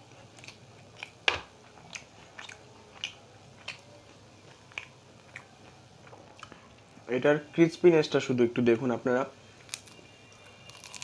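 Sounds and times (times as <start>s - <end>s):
crunchy food being chewed: 0.0s - 6.9s, 9.6s - 11.0s.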